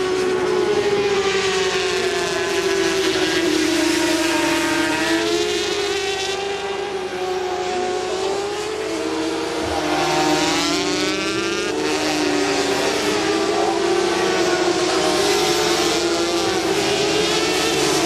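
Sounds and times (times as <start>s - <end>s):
racing motorcycles at high revs: 0.0s - 18.0s.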